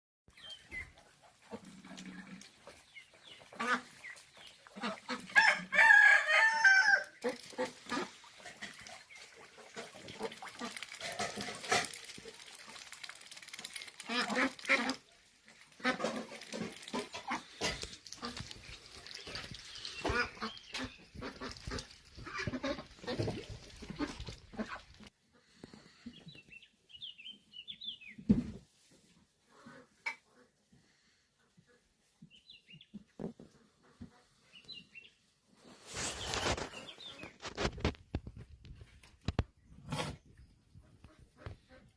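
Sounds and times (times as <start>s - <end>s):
rooster crowing: 5.4s - 7.2s
chickens clucking: 15.7s - 26.4s.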